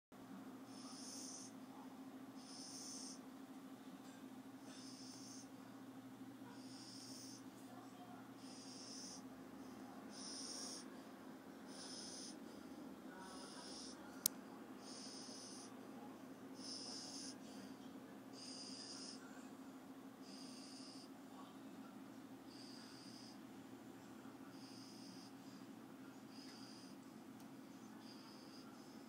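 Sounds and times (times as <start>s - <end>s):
steady low hum: 0.2s - 29.0s
puppy snoring: 0.7s - 3.2s, 4.6s - 5.5s, 6.4s - 7.8s, 8.4s - 11.0s, 11.6s - 12.5s, 13.1s - 14.1s, 14.8s - 15.8s, 16.6s - 17.7s, 18.3s - 19.3s, 20.2s - 21.5s, 22.5s - 23.4s, 24.5s - 25.6s, 26.2s - 27.0s, 27.9s - 29.0s.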